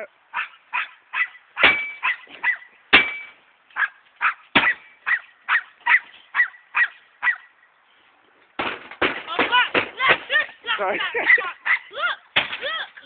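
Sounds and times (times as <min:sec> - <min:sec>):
dog yapping: 0:00.3 - 0:02.7, 0:03.8 - 0:07.5, 0:11.2 - 0:11.9.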